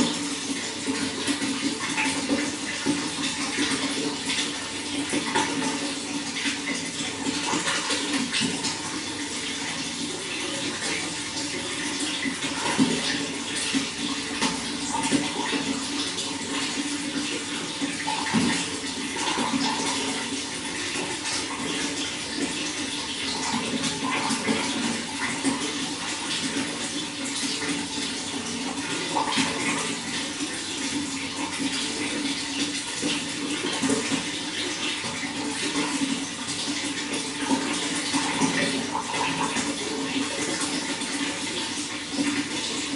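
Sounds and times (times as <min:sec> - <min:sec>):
running water splashing: 0:00.0 - 0:42.9.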